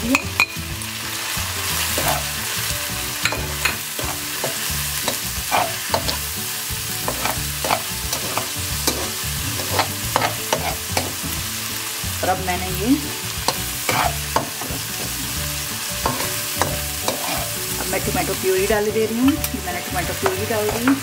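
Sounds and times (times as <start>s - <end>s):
onions sizzling in hot oil: 0.0s - 21.0s
metal spatula scraping a pan: 3.2s - 6.2s, 7.0s - 11.2s, 13.4s - 15.4s, 16.0s - 18.1s.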